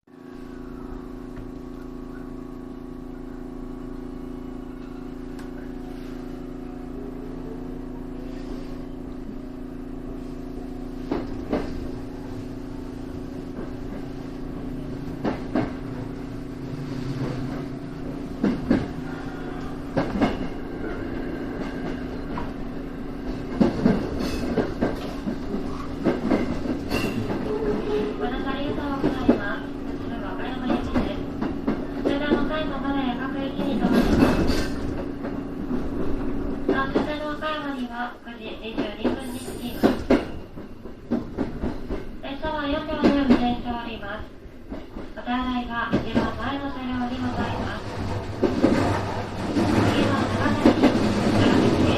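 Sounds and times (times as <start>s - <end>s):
train motor whine: 0.2s - 37.0s.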